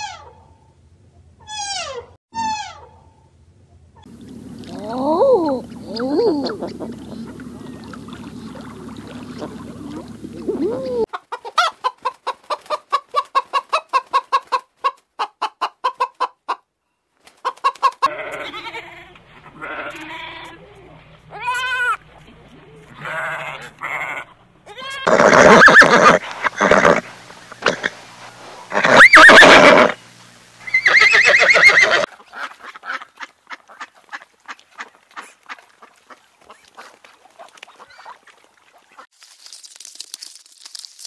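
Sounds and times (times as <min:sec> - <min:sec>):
hen clucking: 0:04.0 - 0:16.6, 0:17.4 - 0:30.0, 0:30.6 - 0:34.3
horse whinnying: 0:25.0 - 0:28.0, 0:28.7 - 0:30.0, 0:30.6 - 0:32.1.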